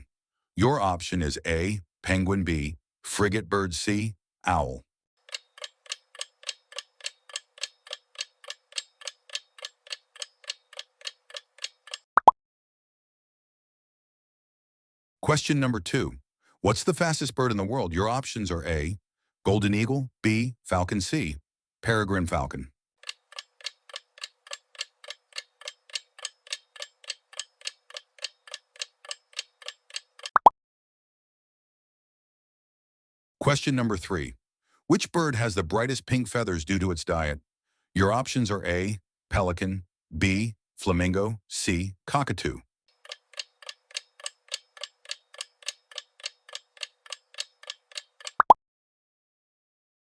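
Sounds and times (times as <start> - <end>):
clock-like ticking: 5.2 - 12.1, 23.0 - 30.4, 43.0 - 48.5.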